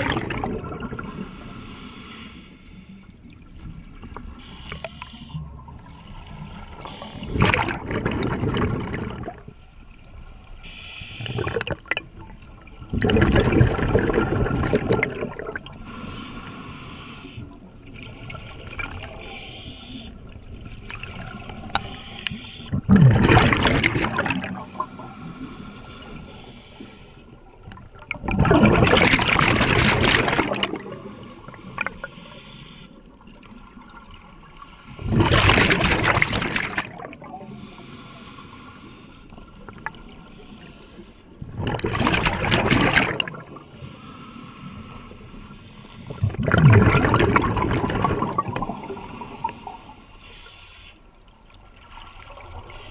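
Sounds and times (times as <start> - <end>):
exhaled bubbles rushing: 0.0 - 1.2, 5.7 - 9.6, 11.2 - 15.8, 22.7 - 25.0, 27.7 - 31.1, 35.0 - 37.4, 41.4 - 43.6, 46.1 - 49.5
diver breathing through regulator: 1.0 - 3.2, 4.4 - 5.6, 6.2 - 7.5, 10.6 - 11.9, 15.6 - 17.7, 19.1 - 20.3, 21.4 - 22.8, 24.7 - 27.4, 30.7 - 33.1, 37.4 - 41.4, 43.6 - 46.2, 48.6 - 51.1.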